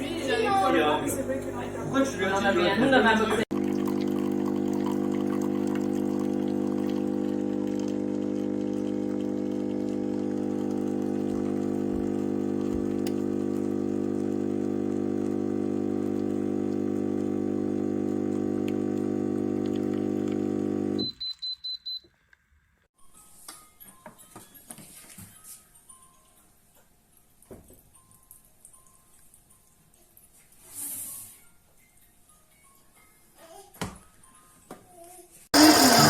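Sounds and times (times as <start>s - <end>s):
espresso machine pump humming: 1.0s - 21.1s, 35.6s - 36.0s.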